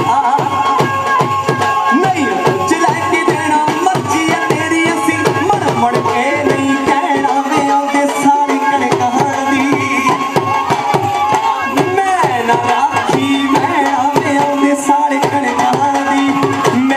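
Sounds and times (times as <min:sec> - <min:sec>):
drum beat: 0:00.0 - 0:16.9
held melody line: 0:00.0 - 0:16.9.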